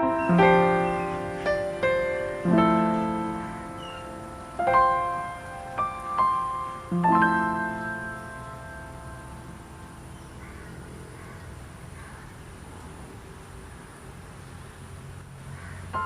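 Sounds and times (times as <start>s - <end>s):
slow piano music: 0.0s - 11.6s.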